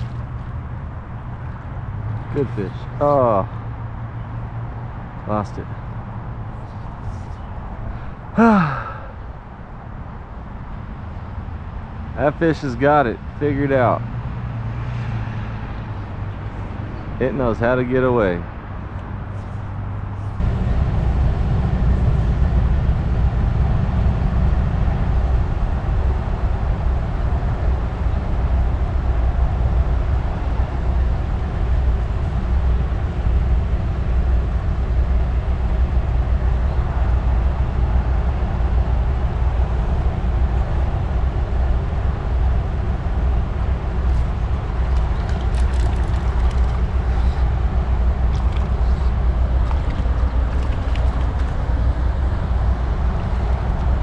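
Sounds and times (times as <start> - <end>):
wind buffeting microphone: 19.7 - 54.0
creek water running: 44.0 - 54.0.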